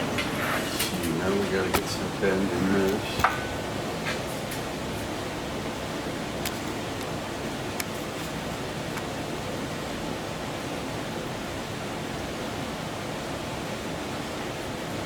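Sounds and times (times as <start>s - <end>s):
steady rushing noise: 0.0s - 9.3s.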